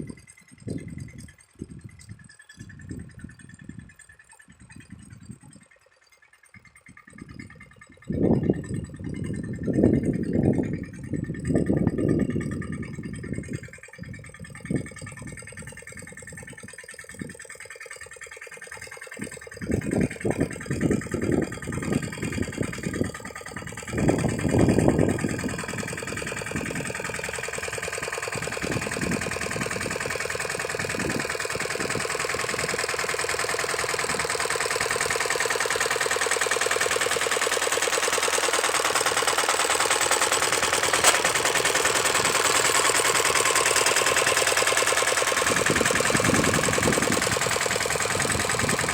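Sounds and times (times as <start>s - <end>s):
diesel tractor engine sputtering: 0.0s - 48.9s.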